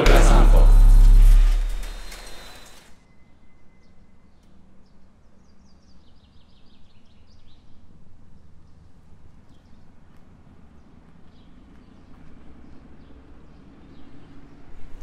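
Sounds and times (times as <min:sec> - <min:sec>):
low outdoor rumble: 0:00.0 - 0:02.8.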